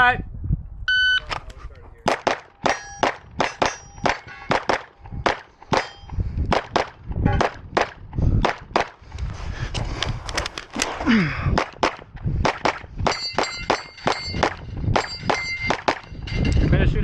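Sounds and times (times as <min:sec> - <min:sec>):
pistol shots: 0:02.0 - 0:09.0, 0:11.6 - 0:16.1
ringing tone of steel targets: 0:02.2 - 0:06.3, 0:13.0 - 0:17.0.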